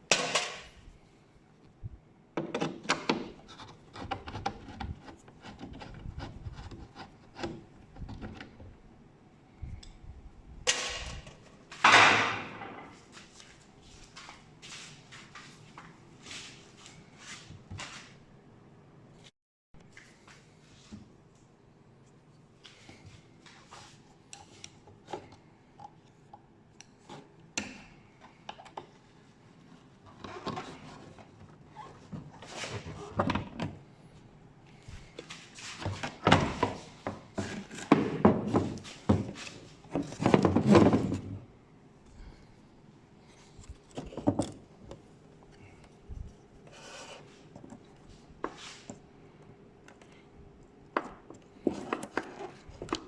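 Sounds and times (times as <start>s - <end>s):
plastic rubbing and scraping: 3.2s - 8.7s.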